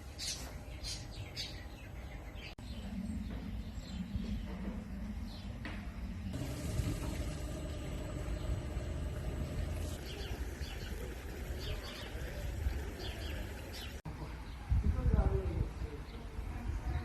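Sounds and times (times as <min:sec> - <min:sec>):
small birds chirping: 0:00.0 - 0:05.6, 0:06.3 - 0:14.6
low outdoor rumble: 0:06.2 - 0:14.0.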